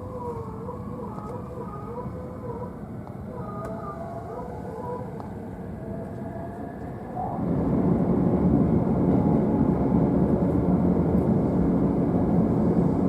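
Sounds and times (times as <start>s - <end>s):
train wheels rumbling on rail: 4.8s - 13.0s.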